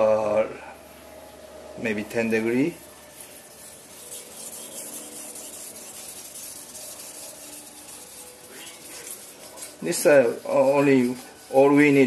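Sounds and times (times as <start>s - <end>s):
knife scraping on whetstone: 2.4s - 12.0s.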